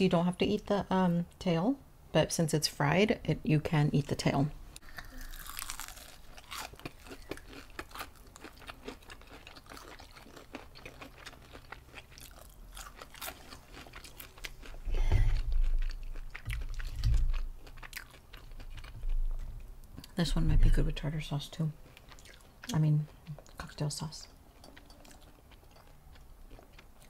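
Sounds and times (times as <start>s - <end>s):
crunching and chewing: 4.8s - 20.1s, 21.8s - 23.8s, 24.4s - 27.0s
dull low thumps: 14.9s - 17.6s.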